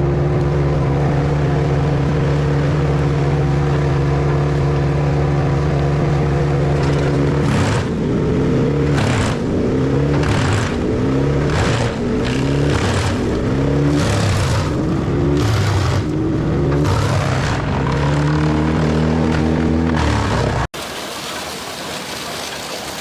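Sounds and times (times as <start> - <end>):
wood chipper engine: 0.0 - 23.0.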